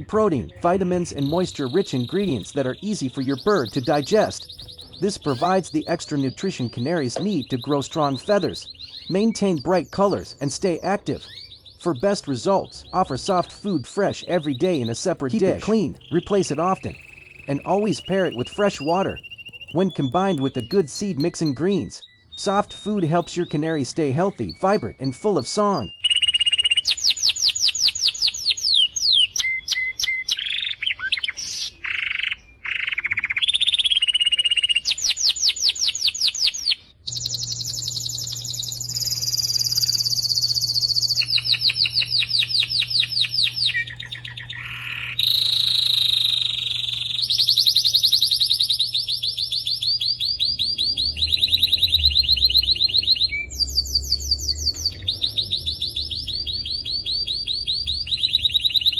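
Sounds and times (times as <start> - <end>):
canary singing: 0.0 - 58.9
faint low hum: 37.0 - 58.9.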